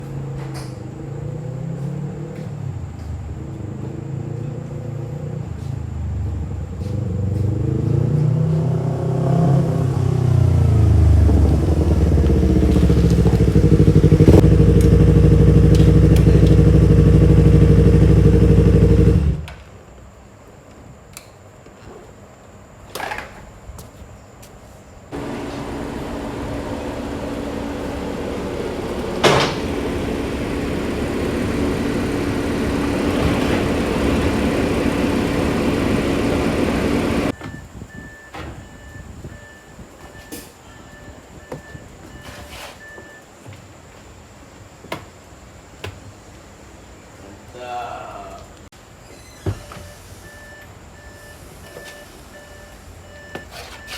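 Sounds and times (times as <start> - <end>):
car engine revving: 6.0 - 19.5, 25.1 - 37.4.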